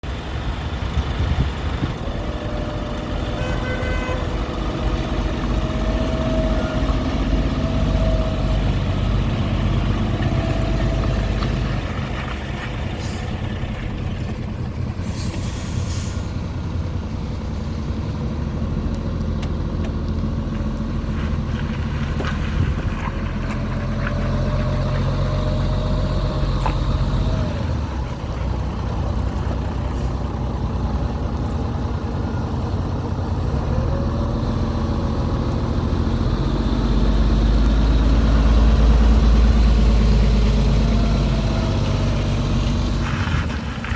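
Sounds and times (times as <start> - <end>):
diesel engine running: 0.0 - 43.9
air hiss burst: 15.0 - 16.3.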